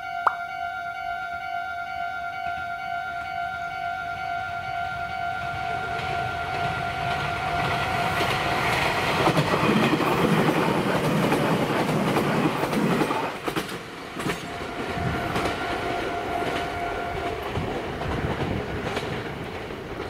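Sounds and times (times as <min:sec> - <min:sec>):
thin train whine: 0:00.0 - 0:20.0
electric train wheels rumbling: 0:02.2 - 0:20.0
train wheel clicks: 0:07.1 - 0:14.6, 0:17.5 - 0:20.0.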